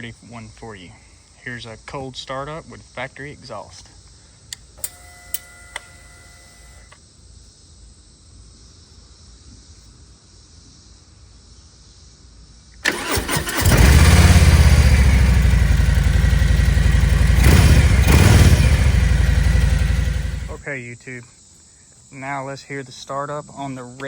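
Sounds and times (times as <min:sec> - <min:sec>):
starter motor cranking: 0:04.8 - 0:06.9, 0:12.8 - 0:20.6
motorcycle engine idling: 0:12.8 - 0:20.6.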